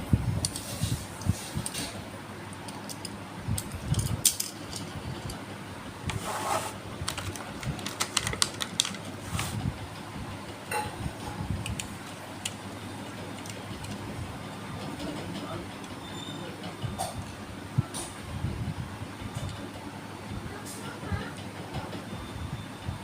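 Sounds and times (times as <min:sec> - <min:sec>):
packaging crinkling rustle: 0:06.9 - 0:09.6
toy cars clicking and tapping: 0:07.1 - 0:09.1.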